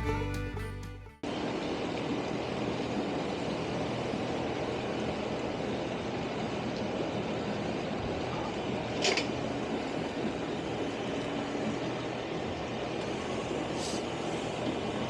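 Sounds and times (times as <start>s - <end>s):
vehicle engine running: 0.0s - 1.2s.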